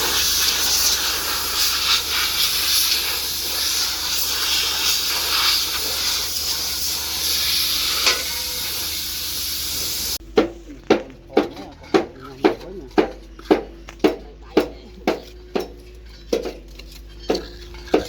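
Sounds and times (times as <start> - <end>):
loud rushing hiss: 0.0 - 10.2.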